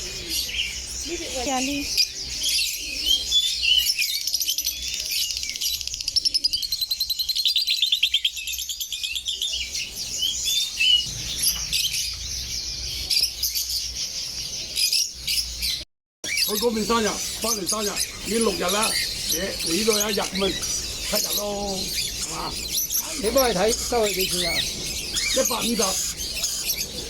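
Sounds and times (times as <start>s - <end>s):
bird trill: 0.0s - 27.0s
songbirds chirping and twittering: 0.0s - 27.0s.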